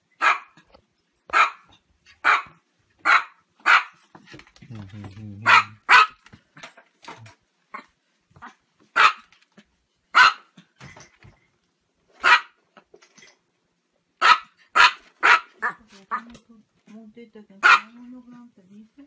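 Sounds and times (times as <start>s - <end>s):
small dog barking: 0.2s - 0.6s, 1.3s - 4.0s, 5.4s - 6.2s, 7.7s - 9.3s, 10.1s - 10.6s, 12.2s - 12.6s, 14.2s - 16.3s, 17.6s - 18.0s.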